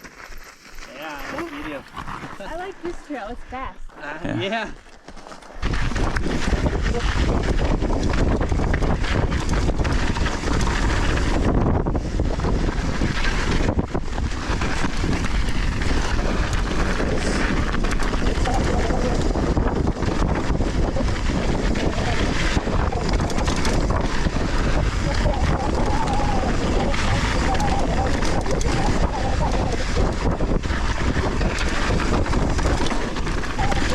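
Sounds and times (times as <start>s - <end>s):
tyres on loose soil: 0.0s - 33.9s
bike rattles and knocks: 5.0s - 33.9s
wind on microphone: 5.6s - 33.9s.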